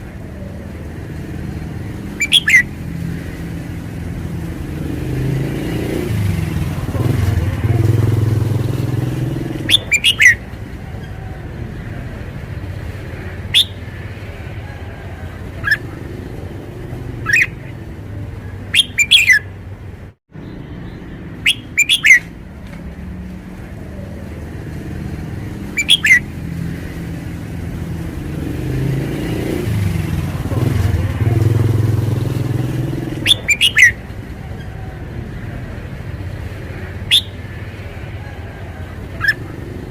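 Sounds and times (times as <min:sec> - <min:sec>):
traffic engine rumble: 0:00.0 - 0:39.9
bird singing: 0:01.4 - 0:03.1, 0:08.6 - 0:12.0, 0:13.1 - 0:14.0, 0:17.1 - 0:17.8, 0:18.4 - 0:19.6, 0:20.4 - 0:22.3, 0:25.6 - 0:26.7, 0:32.6 - 0:35.0, 0:37.0 - 0:39.7.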